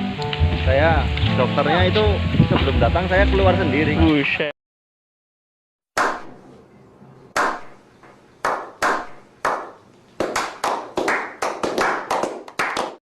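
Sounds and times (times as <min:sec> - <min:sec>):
hand claps: 0:07.4 - 0:07.8, 0:08.4 - 0:13.0.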